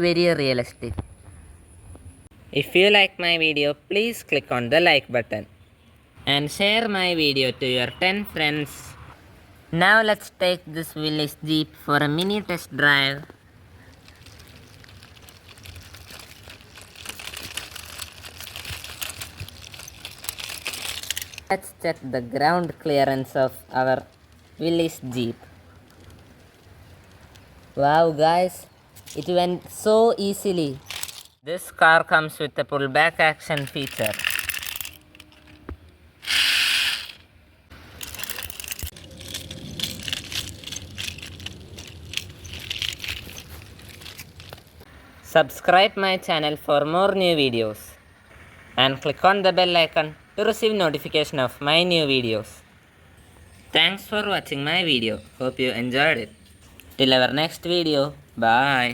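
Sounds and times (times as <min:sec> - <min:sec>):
toy car clicking and rattling: 0:14.2 - 0:21.5, 0:33.5 - 0:35.6, 0:36.2 - 0:37.3, 0:38.0 - 0:44.6.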